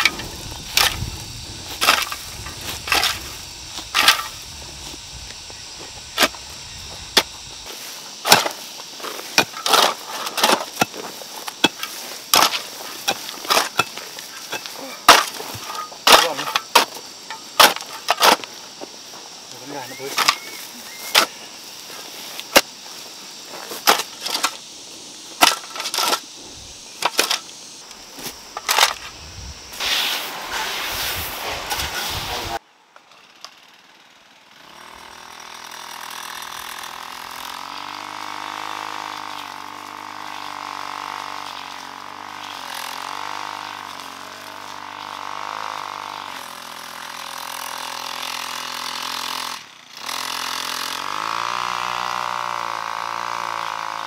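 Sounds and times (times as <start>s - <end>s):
small engine running: 33.2s - 54.0s.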